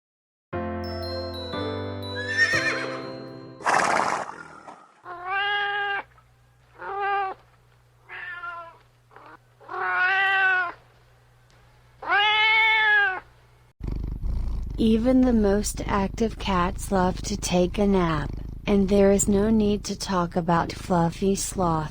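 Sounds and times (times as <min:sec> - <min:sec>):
chiming jingle: 0:00.8 - 0:03.6
cat meowing: 0:05.1 - 0:06.1, 0:06.8 - 0:07.4, 0:08.0 - 0:10.8, 0:12.0 - 0:13.3
faint low hum: 0:05.1 - 0:21.9.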